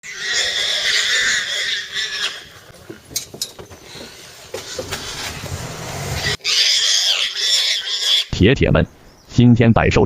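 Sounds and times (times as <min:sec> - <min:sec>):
boar squealing in distress: 0:00.0 - 0:02.7, 0:06.1 - 0:08.4.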